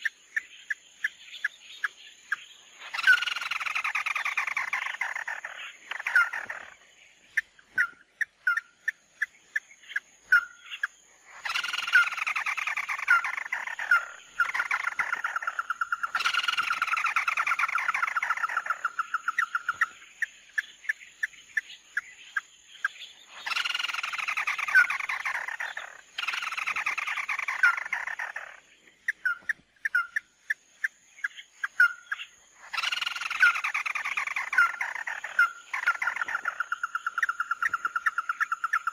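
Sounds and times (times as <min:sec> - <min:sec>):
bird sharp chirps: 0:00.0 - 0:38.9
bird trilling: 0:02.8 - 0:06.8, 0:09.9 - 0:20.0, 0:23.4 - 0:30.3, 0:31.3 - 0:38.9.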